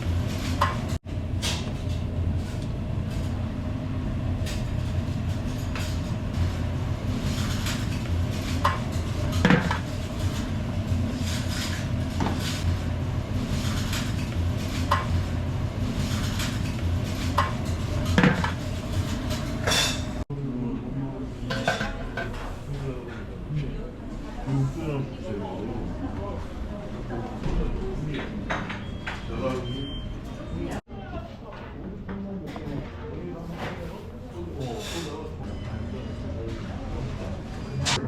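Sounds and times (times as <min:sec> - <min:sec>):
steady low hum: 0:00.0 - 0:20.2
dishes and cutlery clinking: 0:07.2 - 0:10.5, 0:15.9 - 0:20.2, 0:21.5 - 0:22.6.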